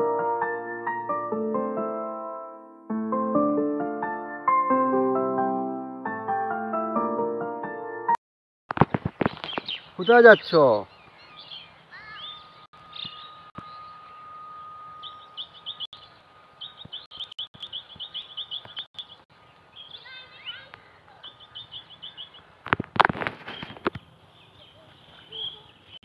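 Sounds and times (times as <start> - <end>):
small birds chirping: 9.0 - 14.3, 15.0 - 22.6, 23.4 - 26.0
thin whistle-like tone: 12.4 - 16.1.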